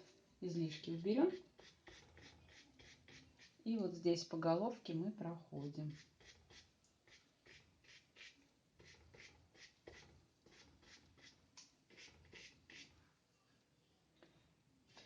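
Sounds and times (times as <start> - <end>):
paintbrush strokes on paper: 0.8 - 3.7, 5.6 - 13.1.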